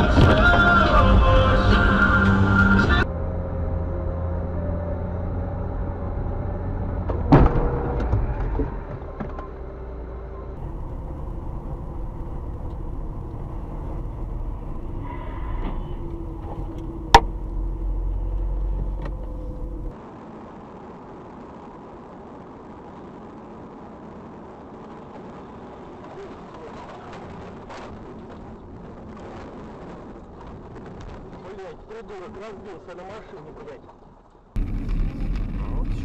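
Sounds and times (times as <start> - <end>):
car engine and road rumble: 0.0 - 36.0.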